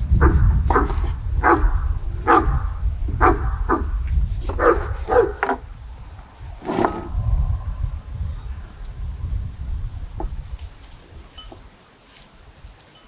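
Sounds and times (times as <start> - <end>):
steady low rumble: 0.0 - 11.4
dog barking: 0.1 - 5.7.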